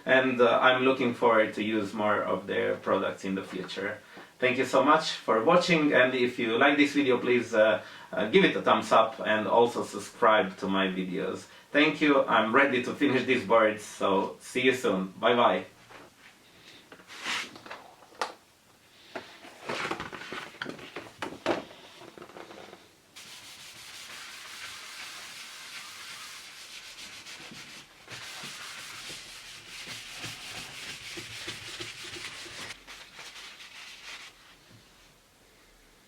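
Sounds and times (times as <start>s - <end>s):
hand rubbing on wooden board: 23.2s - 34.5s.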